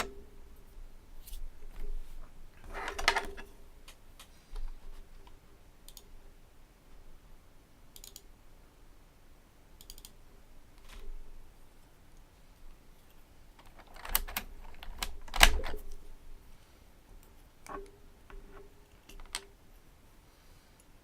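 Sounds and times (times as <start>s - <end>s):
keyboard typing: 13.6s - 15.9s.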